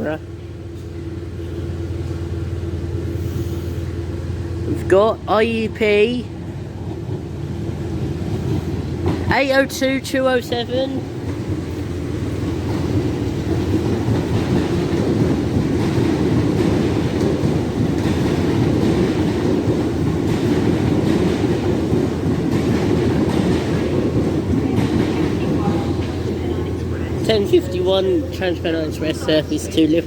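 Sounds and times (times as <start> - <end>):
train running noise: 0.0 - 30.0.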